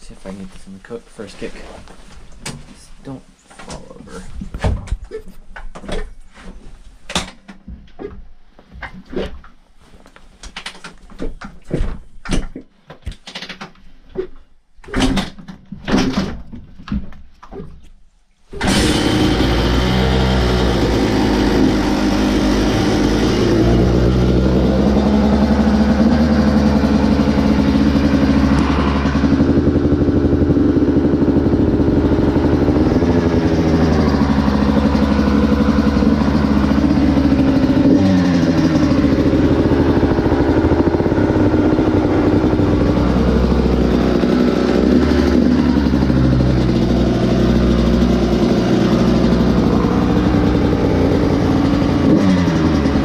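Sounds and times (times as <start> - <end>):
two-stroke engine idling: 18.7 - 53.0.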